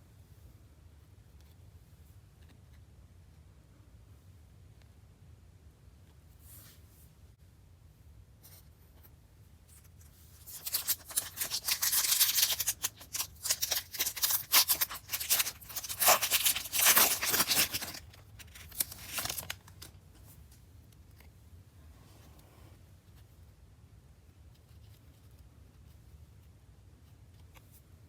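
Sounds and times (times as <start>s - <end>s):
plastic packaging tearing and crinkling: 10.3s - 20.0s.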